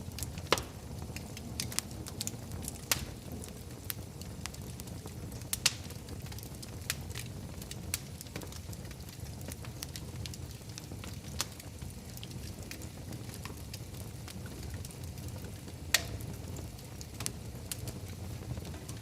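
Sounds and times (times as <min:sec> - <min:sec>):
fire burning in fireplace: 0:00.0 - 0:19.0
wood fire crackling: 0:00.0 - 0:19.0
sharp pop of fire: 0:00.5 - 0:00.8, 0:15.9 - 0:16.3.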